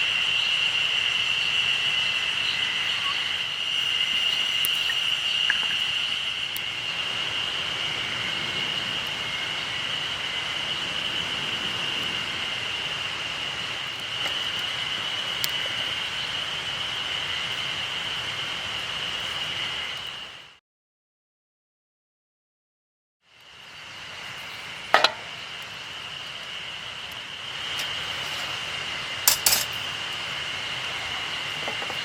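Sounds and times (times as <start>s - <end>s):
high-pitched insect drone: 0.0s - 20.4s.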